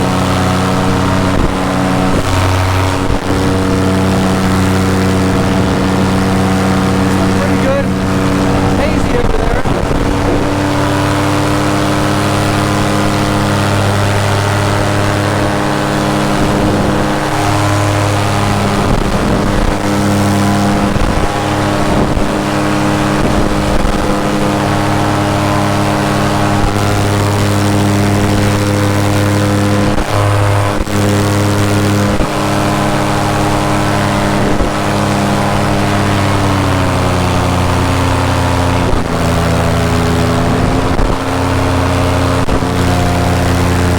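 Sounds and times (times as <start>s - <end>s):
paramotor engine and propeller: 0.0s - 43.9s.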